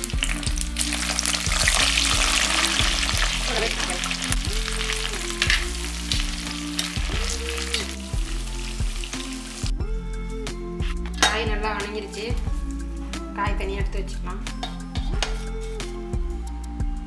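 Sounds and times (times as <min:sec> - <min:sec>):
vegetables sizzling in oil: 0:00.0 - 0:09.7.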